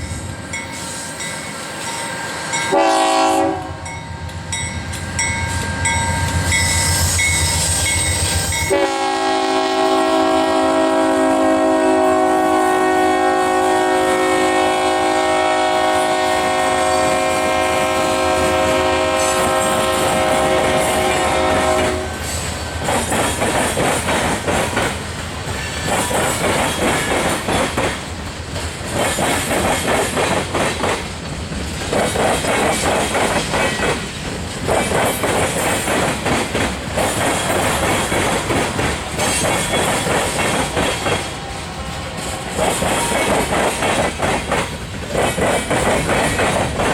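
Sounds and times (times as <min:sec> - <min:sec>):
train air horn chord: 0:02.7 - 0:03.9, 0:08.7 - 0:22.6
train wheels clattering over rails: 0:15.8 - 0:46.9.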